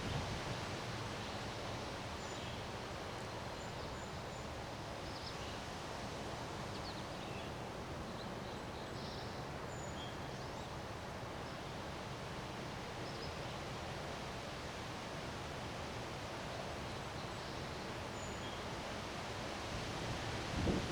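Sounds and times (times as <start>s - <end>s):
wind: 0.0s - 20.9s.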